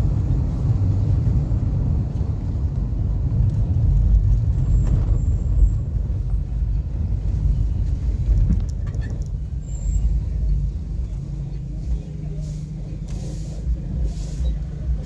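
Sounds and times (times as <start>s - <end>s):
vehicle driving rumble: 0.0s - 15.0s.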